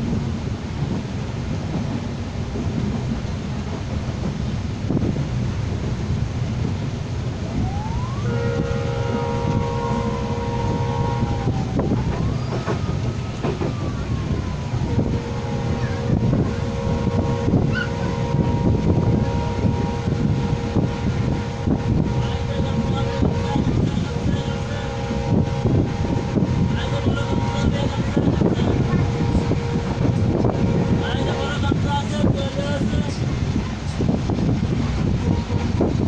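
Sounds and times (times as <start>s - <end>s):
train wheels rumbling on track: 0.0s - 36.0s
train horn: 7.5s - 33.2s, 35.1s - 35.9s.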